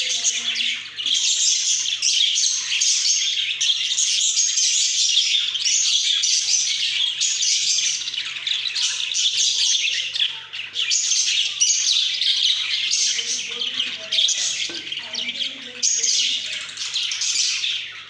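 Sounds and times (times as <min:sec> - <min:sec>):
budgerigars chattering and chirping: 0:00.0 - 0:18.0.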